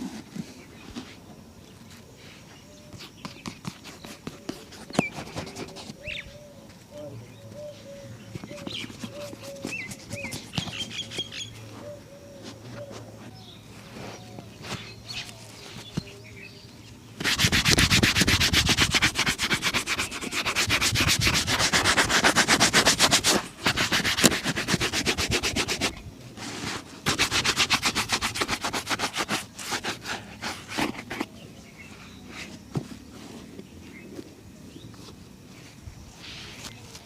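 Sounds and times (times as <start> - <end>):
polishing strokes on leather shoe: 17.2 - 26.0, 27.1 - 31.3.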